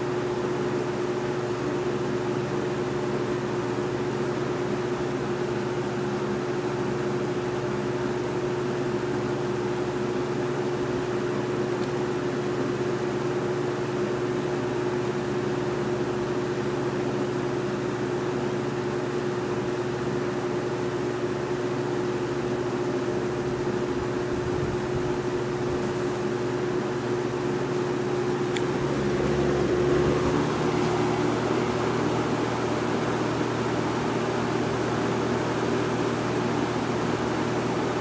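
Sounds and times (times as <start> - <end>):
box fan running: 0.0 - 38.0.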